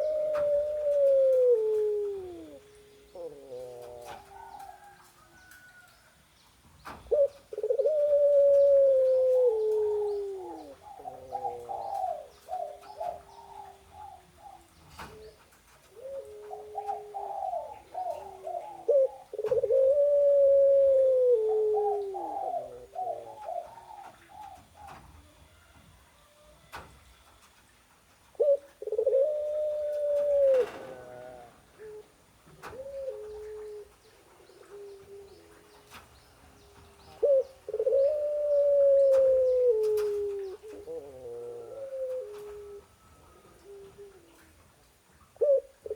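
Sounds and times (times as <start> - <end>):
bird long falling calls: 28.4 - 44.5
bird long melodious call: 36.6 - 44.4.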